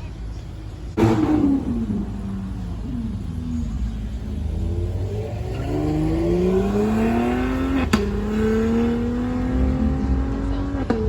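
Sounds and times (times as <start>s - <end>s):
car engine accelerating hard: 0.9s - 11.0s
sharp pop from engine: 1.0s - 2.6s, 6.9s - 8.8s.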